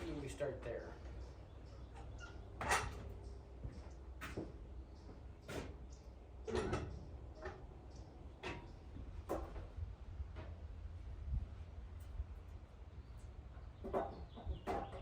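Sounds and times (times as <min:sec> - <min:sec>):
short knocks and bumps: 0:13.8 - 0:15.0.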